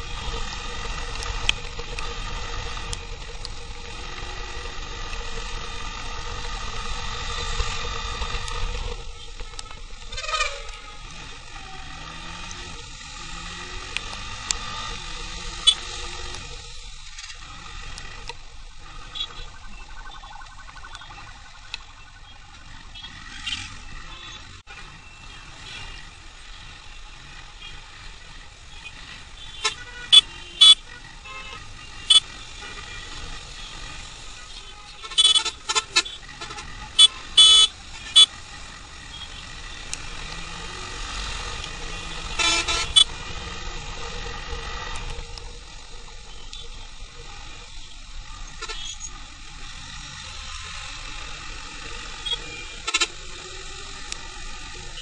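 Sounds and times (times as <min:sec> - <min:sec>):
traffic and road noise: 0:00.0 - 0:55.0
vehicle horns honking: 0:23.0 - 0:24.5, 0:29.3 - 0:33.9, 0:34.5 - 0:38.4, 0:42.2 - 0:43.2, 0:48.4 - 0:49.2, 0:52.2 - 0:53.6.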